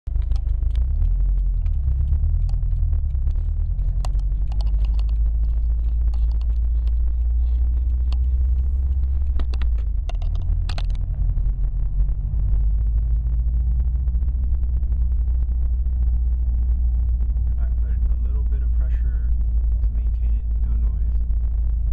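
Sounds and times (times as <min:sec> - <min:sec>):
car engine low rumble: 0:00.0 - 0:21.9
sharp clicks and knocks: 0:00.1 - 0:11.5.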